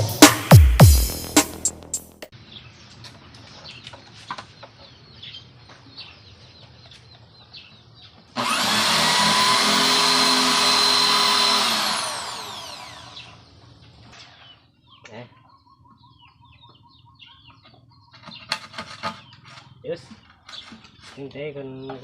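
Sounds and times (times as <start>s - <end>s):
electric power tool running: 8.4s - 13.4s.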